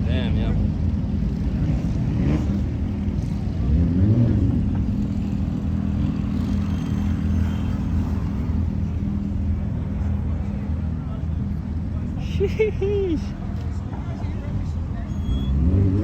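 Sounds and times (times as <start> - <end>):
car engine idling: 4.5 - 15.1.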